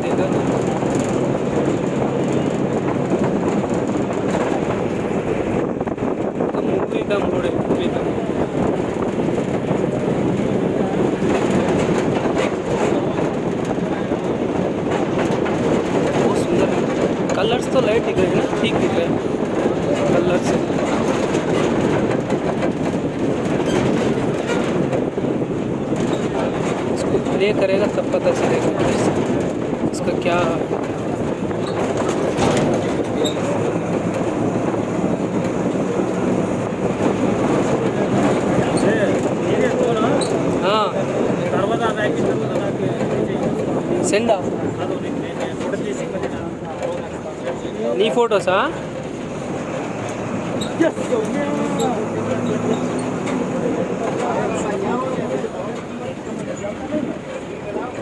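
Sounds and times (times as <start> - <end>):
moving train rumble and rattle: 0.0 - 58.0.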